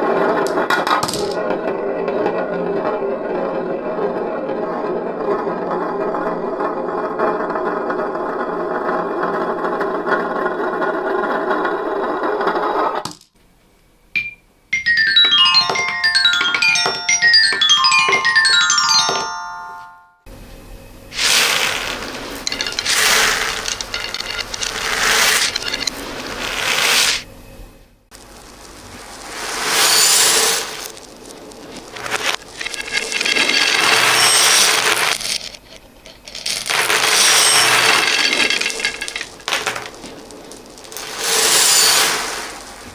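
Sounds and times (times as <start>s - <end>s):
xylophone descending runs: 14.2s - 20.2s
wash of ringing tones: 14.2s - 27.3s, 28.2s - 35.6s
falling beads rattling: 14.8s - 19.5s, 21.1s - 27.3s, 28.1s - 42.9s.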